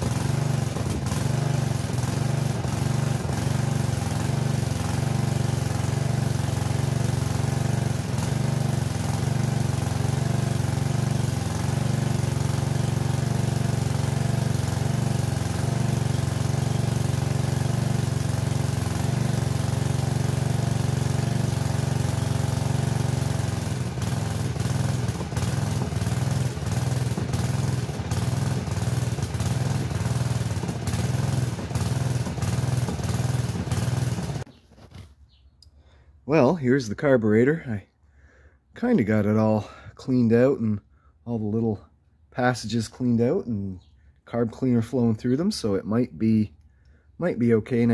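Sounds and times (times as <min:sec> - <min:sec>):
garden tractor engine running: 0:00.0 - 0:35.4, 0:42.4 - 0:47.9.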